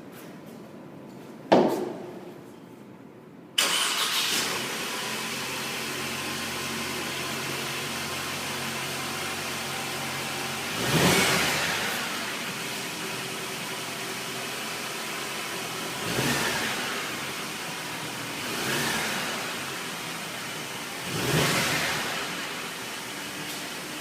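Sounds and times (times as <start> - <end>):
car engine idling and revving: 3.6 - 24.0.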